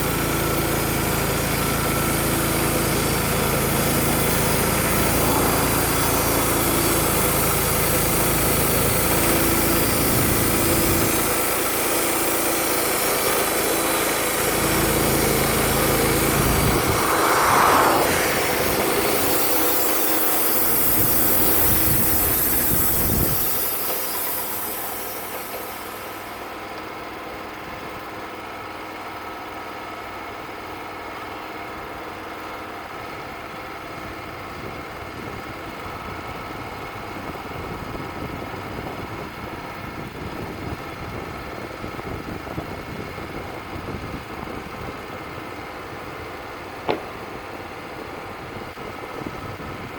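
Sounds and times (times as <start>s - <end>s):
band saw blade cutting log: 0.0s - 26.6s
sawmill engine running: 0.0s - 49.9s.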